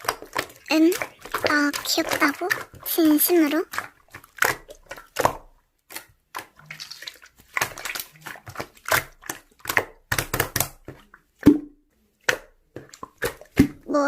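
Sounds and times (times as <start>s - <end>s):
hands squishing slime: 0.0s - 14.0s.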